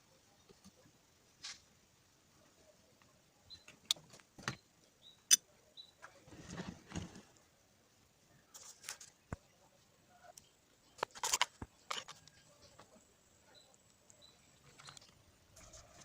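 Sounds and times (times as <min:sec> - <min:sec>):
scraping or rustling: 0:06.2 - 0:07.3.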